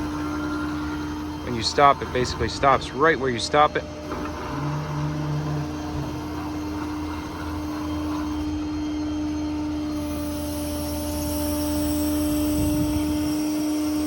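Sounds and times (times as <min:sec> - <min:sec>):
diesel truck engine running: 0:00.0 - 0:10.0
hydraulic pump whine: 0:00.0 - 0:14.0.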